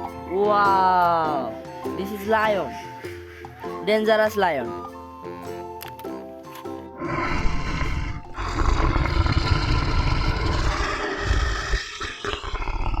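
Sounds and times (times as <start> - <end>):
lion roaring: 7.0 - 13.0.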